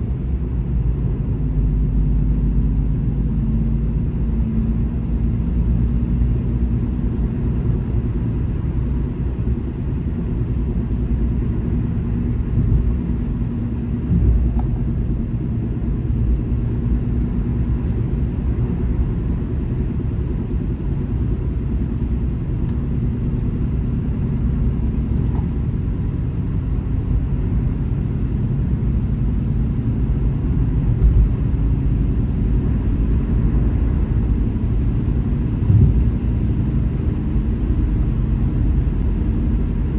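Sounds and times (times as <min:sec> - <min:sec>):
muffled car road rumble: 0:00.0 - 0:39.9
soft bumps from road: 0:35.6 - 0:36.3.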